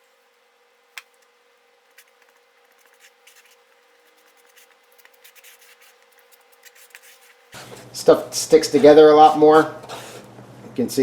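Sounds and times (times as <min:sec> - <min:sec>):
metal spreader scraping filler: 0:08.5 - 0:10.3.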